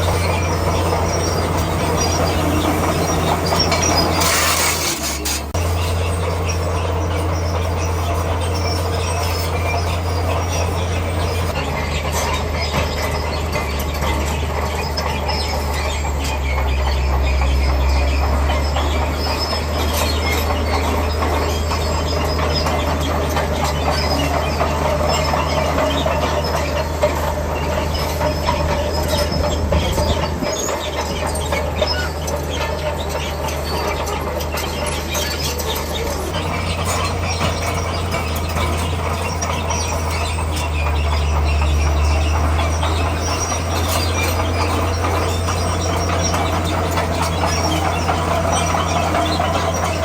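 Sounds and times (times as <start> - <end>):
rock grinding under blade: 0.0 - 5.7, 34.9 - 50.0
bulldozer diesel engine running: 0.0 - 50.0
steel tracks clattering and squealing: 0.0 - 50.0.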